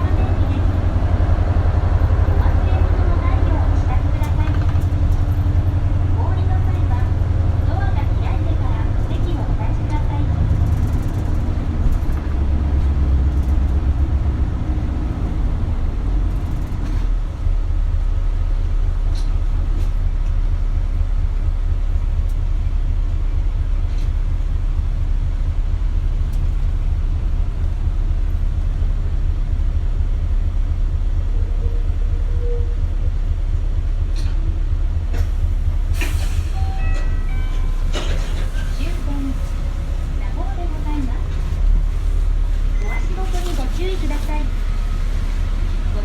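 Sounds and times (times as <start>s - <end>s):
bus diesel engine rumble: 0.0s - 46.0s.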